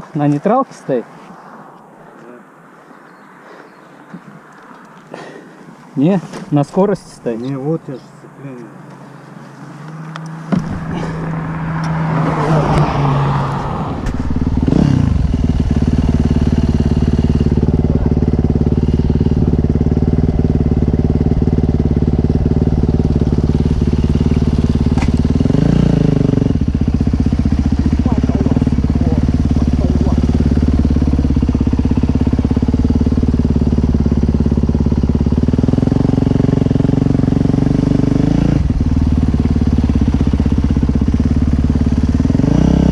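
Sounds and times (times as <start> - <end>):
dirt bike engine revving: 10.3 - 42.9.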